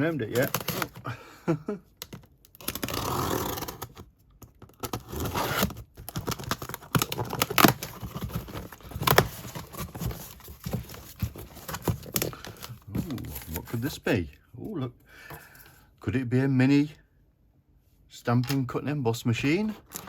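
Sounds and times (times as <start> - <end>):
cardboard and packing rustling: 0.0 - 1.2, 2.0 - 14.0, 19.6 - 20.0
cardboard tearing: 0.1 - 1.0, 2.5 - 4.0, 4.7 - 13.8.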